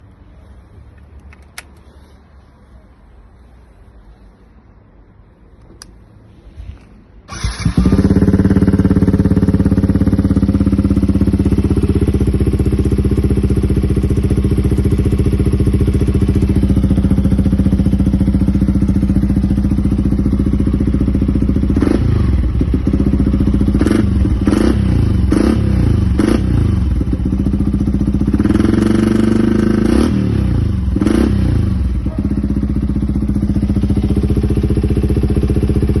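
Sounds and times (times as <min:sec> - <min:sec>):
engine idling and revving: 0:07.3 - 0:36.0.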